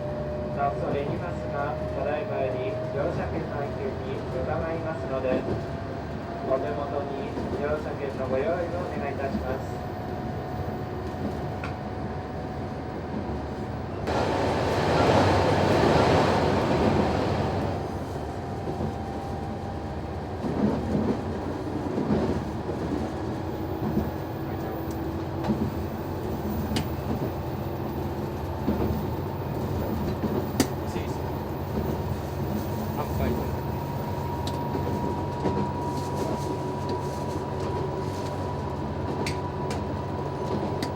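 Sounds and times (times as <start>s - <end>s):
diesel railcar engine drone: 8.4s - 40.9s.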